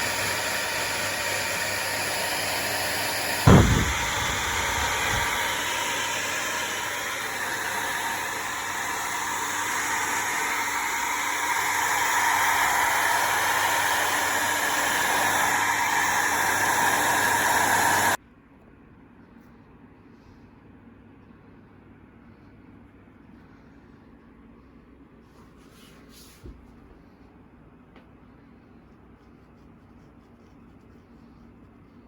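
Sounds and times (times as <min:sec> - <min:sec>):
hair dryer blowing: 0:00.0 - 0:18.2.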